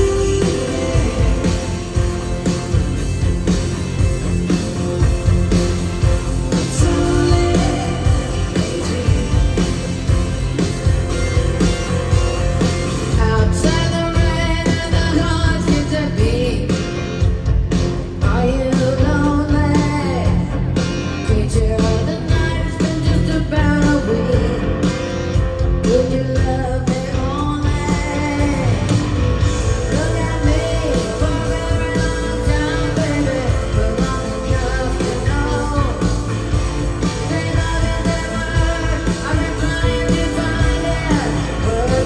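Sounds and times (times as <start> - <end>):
woman singing: 0.0 - 2.0, 6.6 - 9.9, 13.1 - 17.0, 18.2 - 20.6, 21.2 - 24.9, 25.8 - 42.0
rock band playing: 0.0 - 42.0.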